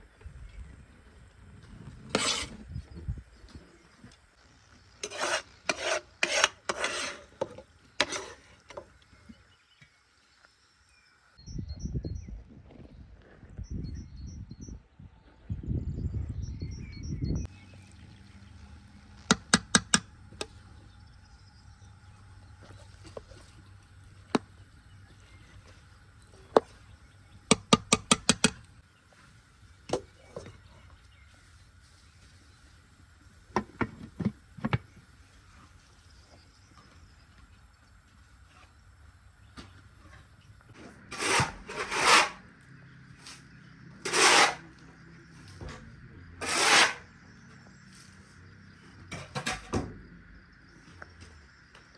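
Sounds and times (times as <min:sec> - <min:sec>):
rough scraping strokes: 0:01.8 - 0:02.8, 0:05.0 - 0:08.7, 0:40.8 - 0:42.5, 0:44.0 - 0:44.8, 0:46.4 - 0:47.1.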